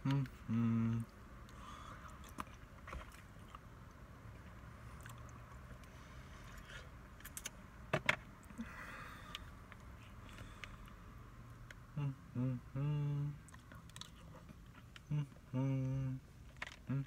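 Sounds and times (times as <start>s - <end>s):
man chewing food: 0.0s - 7.4s.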